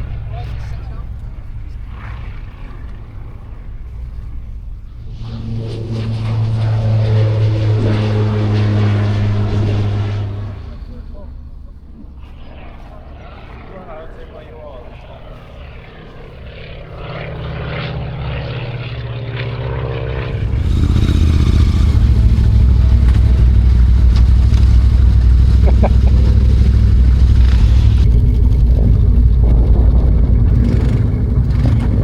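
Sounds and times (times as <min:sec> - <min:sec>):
motorcycle engine: 0:00.0 - 0:14.0, 0:14.6 - 0:32.0
light propeller aircraft droning: 0:00.0 - 0:32.0
wind rush: 0:19.2 - 0:32.0.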